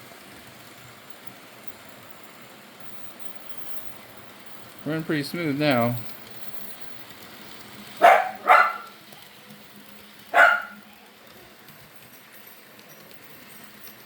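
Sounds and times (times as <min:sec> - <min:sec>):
dog barking: 0:08.0 - 0:09.0, 0:10.3 - 0:10.9.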